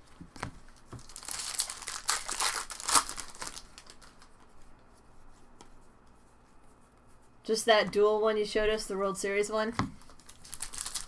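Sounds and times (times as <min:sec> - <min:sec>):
plastic wrapper crinkling and tearing: 0:01.0 - 0:04.4, 0:10.0 - 0:11.0.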